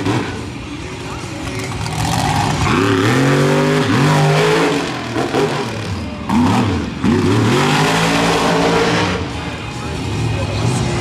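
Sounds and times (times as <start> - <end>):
truck engine revving: 1.4 - 11.0.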